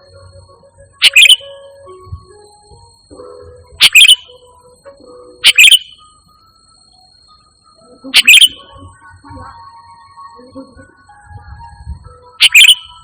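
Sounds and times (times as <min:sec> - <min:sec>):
faint music: 0:00.0 - 0:13.0
bird calling bubbly phrases: 0:08.1 - 0:08.7.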